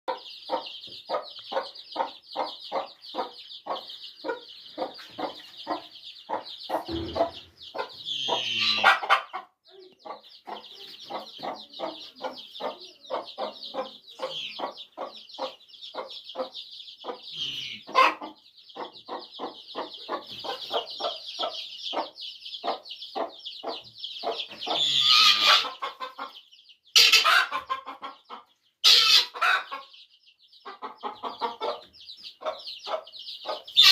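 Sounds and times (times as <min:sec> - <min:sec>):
chicks peeping: 0:00.1 - 0:33.9
hen clucking: 0:00.1 - 0:33.9.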